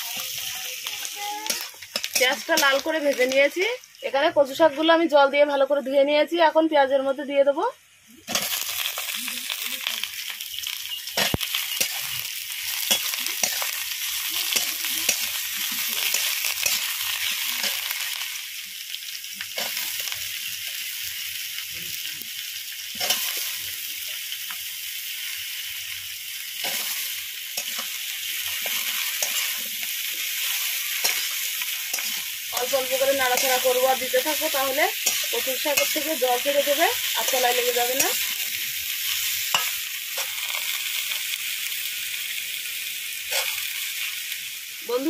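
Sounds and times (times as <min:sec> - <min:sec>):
metal spatula scraping wok: 0:00.0 - 0:03.3, 0:08.3 - 0:10.3, 0:11.0 - 0:18.2, 0:26.6 - 0:40.8, 0:43.3 - 0:43.9
greens sizzling in hot oil: 0:00.0 - 0:45.0.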